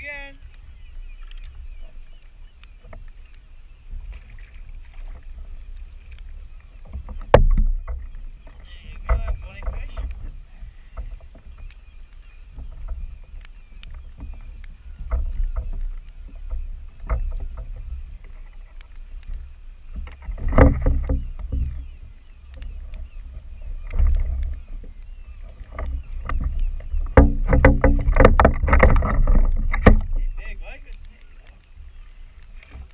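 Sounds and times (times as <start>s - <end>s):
water sloshing against kayak hull: 0.0s - 32.9s
small clicks and knocks: 1.2s - 1.6s, 11.0s - 21.8s, 23.8s - 24.6s, 25.5s - 31.8s.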